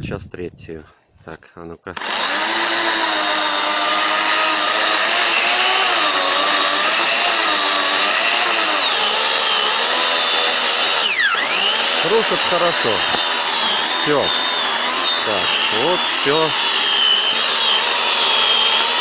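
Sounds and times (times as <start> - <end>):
electric chainsaw cutting log: 2.0 - 19.0.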